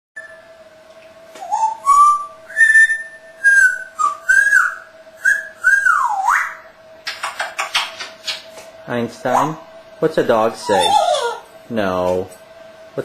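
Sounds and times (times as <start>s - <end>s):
parrot whistling: 0.2s - 0.5s, 1.4s - 8.0s, 10.6s - 11.5s.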